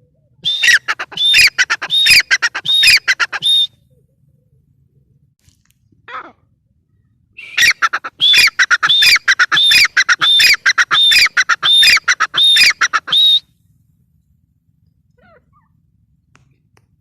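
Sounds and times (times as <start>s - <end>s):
harsh bird call: 0.4s - 3.7s, 7.4s - 13.4s.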